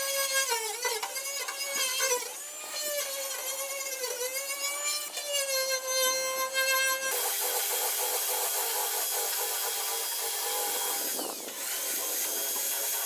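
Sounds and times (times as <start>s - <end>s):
power tool whining: 0.0s - 13.0s.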